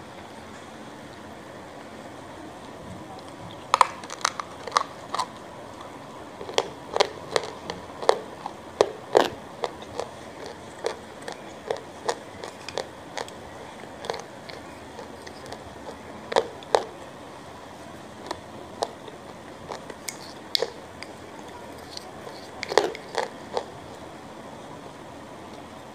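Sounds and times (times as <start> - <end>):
wet chewing and smacking: 2.6 - 17.0, 17.8 - 24.0.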